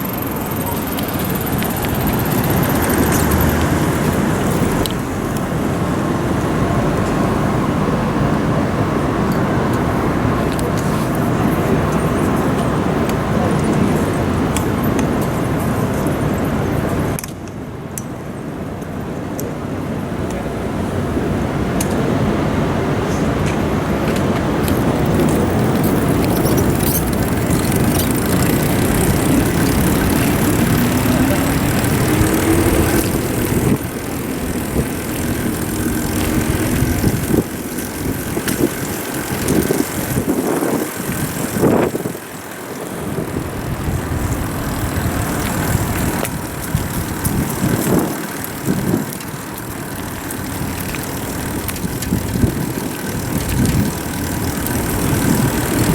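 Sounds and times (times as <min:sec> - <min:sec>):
city street traffic rumble: 0:00.0 - 0:55.9
engine revving up: 0:24.9 - 0:38.8.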